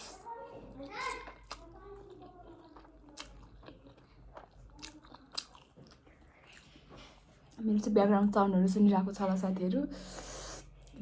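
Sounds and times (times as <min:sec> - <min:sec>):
person chewing food: 0:00.0 - 0:07.6.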